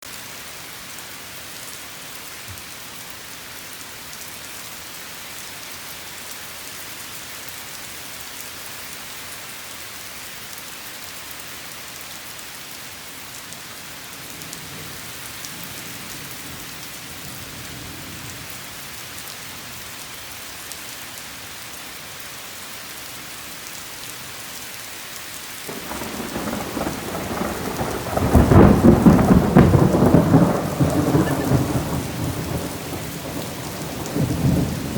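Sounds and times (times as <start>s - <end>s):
steady rain falling: 0.1s - 34.9s
thunder rumbling: 25.7s - 34.9s.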